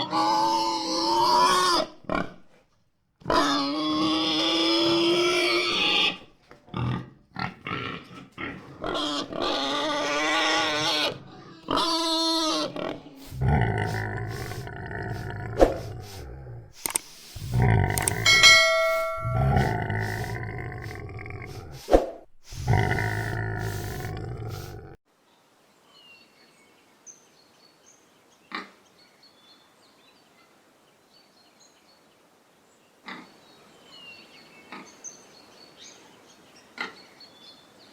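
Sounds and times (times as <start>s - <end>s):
pigs squealing: 0.0s - 2.4s, 3.3s - 16.2s, 16.9s - 24.8s
pigs grunting: 0.0s - 2.6s, 3.2s - 25.0s
clear tone: 18.0s - 20.3s.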